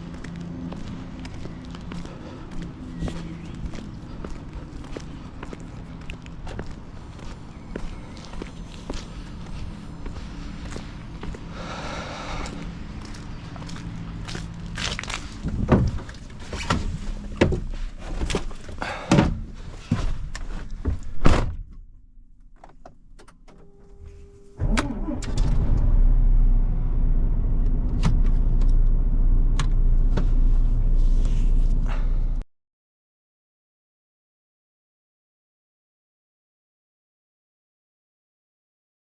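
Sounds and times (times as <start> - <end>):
clunks and knocks: 15.5 - 21.9
low hum: 23.6 - 32.4.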